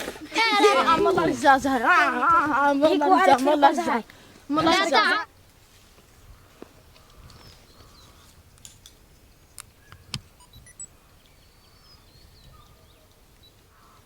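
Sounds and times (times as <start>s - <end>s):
bird calls: 6.3s - 8.4s, 9.0s - 14.0s.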